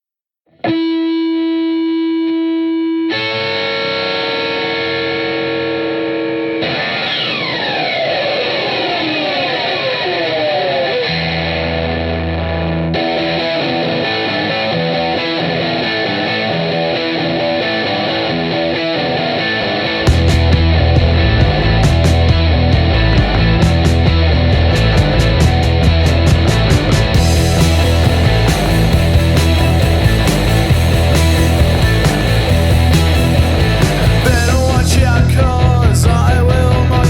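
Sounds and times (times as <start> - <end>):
distorted electric guitar chords: 0.5 - 37.0
low bass note: 20.1 - 35.2.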